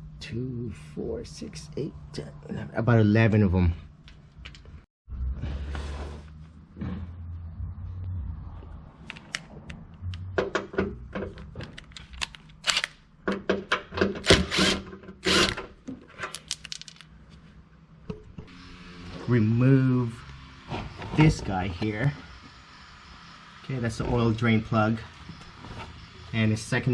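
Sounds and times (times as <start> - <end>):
metal clinks and knocks: 16.1 - 17.2.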